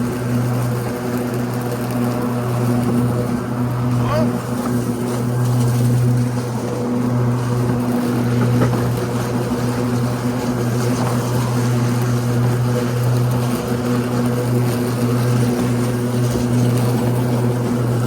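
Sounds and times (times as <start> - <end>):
electric mower blades humming: 0.0 - 18.0.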